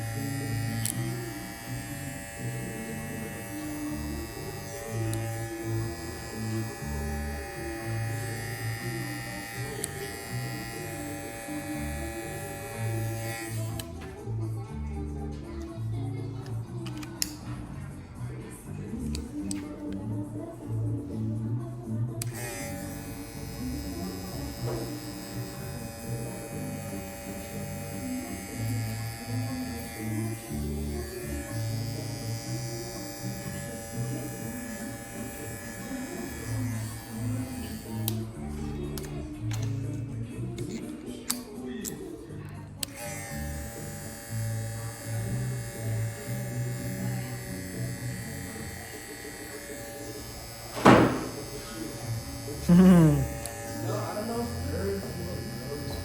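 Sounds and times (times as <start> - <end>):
hair clipper motor buzzing: 0.0 - 14.0, 22.2 - 39.8, 42.8 - 56.0
background music: 0.0 - 56.0
click: 13.8 - 14.2, 16.4 - 17.4, 19.1 - 20.0, 38.0 - 38.2, 39.0 - 39.8, 40.6 - 42.0.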